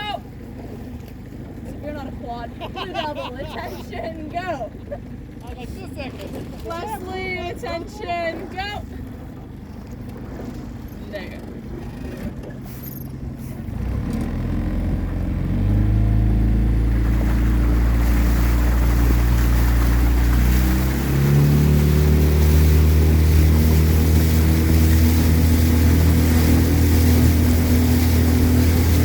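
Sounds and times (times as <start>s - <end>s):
outboard motor droning: 0.0s - 29.0s
water and wind hiss: 0.0s - 29.0s.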